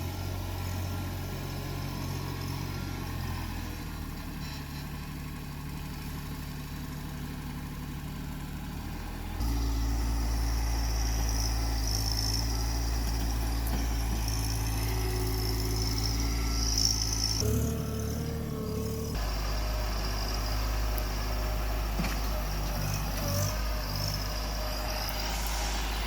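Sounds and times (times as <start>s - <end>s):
tractor diesel engine running: 0.0s - 26.0s
high whine: 24.2s - 26.0s.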